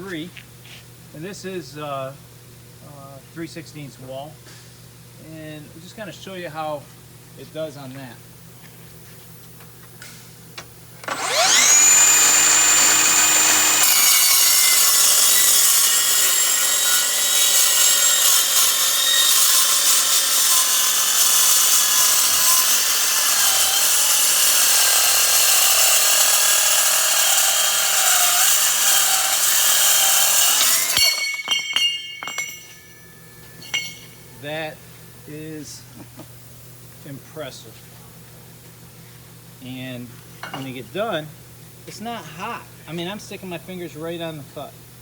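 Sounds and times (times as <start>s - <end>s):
circular saw cutting steel: 11.0s - 32.9s
metallic clinks: 30.9s - 34.2s.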